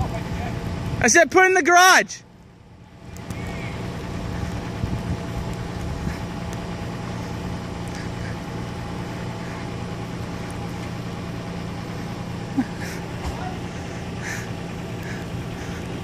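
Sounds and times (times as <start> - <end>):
car engine running steadily: 0.0 - 16.0.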